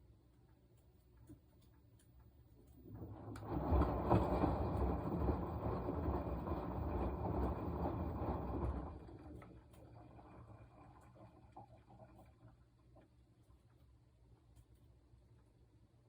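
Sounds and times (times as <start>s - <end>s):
washing machine drum churning: 2.7s - 13.1s.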